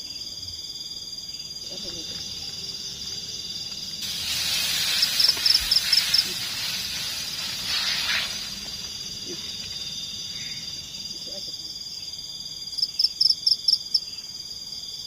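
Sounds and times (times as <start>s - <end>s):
insects trilling: 0.0s - 15.0s
hissing rush: 2.1s - 11.3s.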